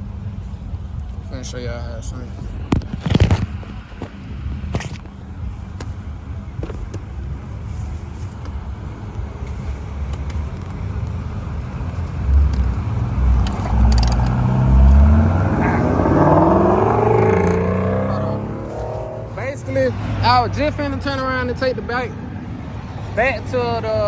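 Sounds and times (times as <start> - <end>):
low traffic rumble: 0.0 - 24.0
car engine approaching: 8.6 - 24.0.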